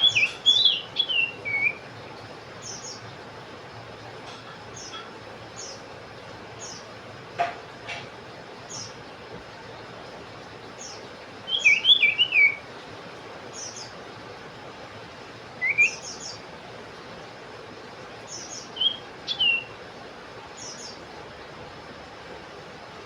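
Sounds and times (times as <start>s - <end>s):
bird whistled calls: 0.0s - 1.8s, 11.5s - 12.6s, 15.6s - 16.4s, 18.3s - 19.8s.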